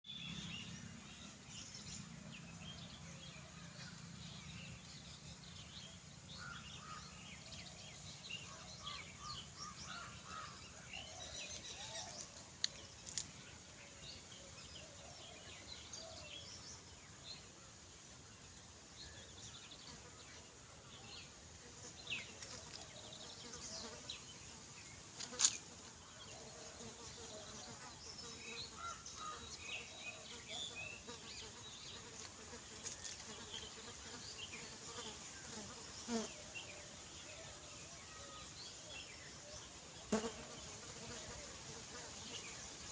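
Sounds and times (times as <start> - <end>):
insects buzzing: 19.5 - 42.9.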